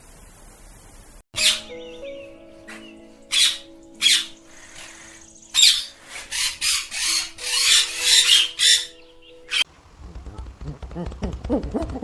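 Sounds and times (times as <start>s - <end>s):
bird harsh squawks: 1.4s - 2.0s, 2.6s - 9.7s.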